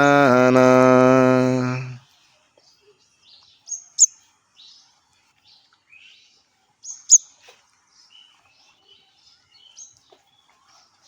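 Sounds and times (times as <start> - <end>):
bird chirping: 2.7 - 4.8, 5.5 - 10.5
soft bird twittering: 6.8 - 7.4.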